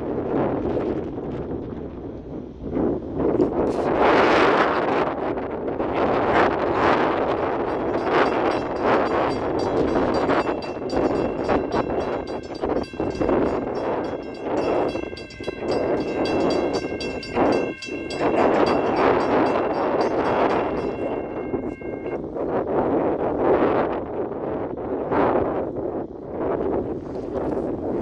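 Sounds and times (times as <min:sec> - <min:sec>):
wind rumble on microphone: 0:00.0 - 0:28.0
train going by: 0:06.4 - 0:22.3
high-pitched tones: 0:07.3 - 0:22.2.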